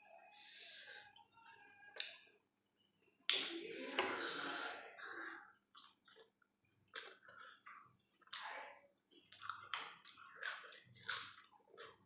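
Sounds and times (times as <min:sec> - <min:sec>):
person chewing food: 0:05.5 - 0:12.0.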